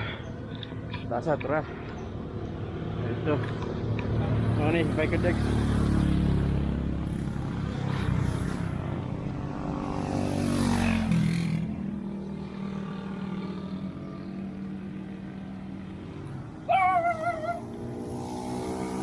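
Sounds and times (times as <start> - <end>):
vehicle passing: 2.7 - 19.0
dog whining: 16.7 - 17.8.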